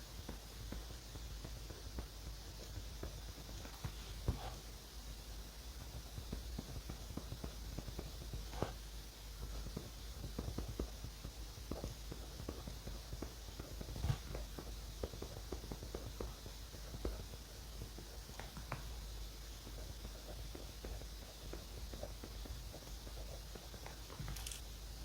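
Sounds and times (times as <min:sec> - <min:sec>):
faint low hum: 0:00.0 - 0:25.0
pen scratching on paper: 0:03.9 - 0:04.7, 0:08.5 - 0:08.8.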